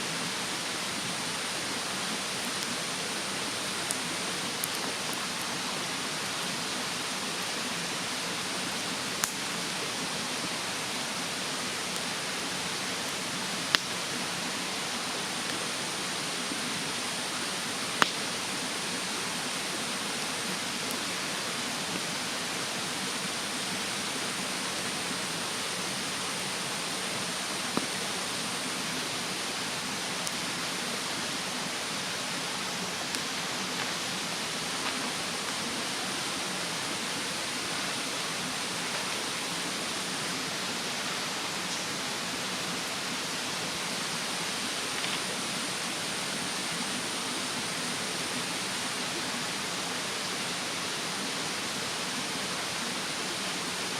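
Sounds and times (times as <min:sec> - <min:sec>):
mountain stream rushing: 0:00.0 - 0:53.9
bonfire crackling pops: 0:02.4 - 0:05.4, 0:09.2 - 0:09.5, 0:13.7 - 0:14.0, 0:17.9 - 0:18.4, 0:27.6 - 0:28.0.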